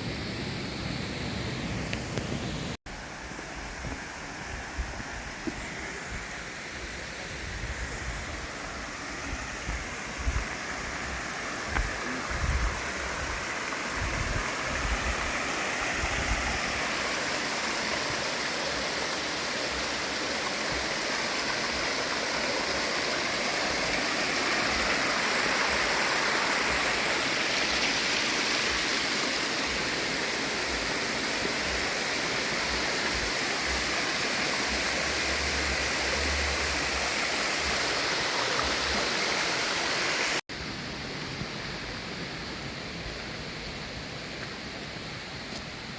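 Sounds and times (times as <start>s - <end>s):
waterfall rushing: 1.4s - 45.9s.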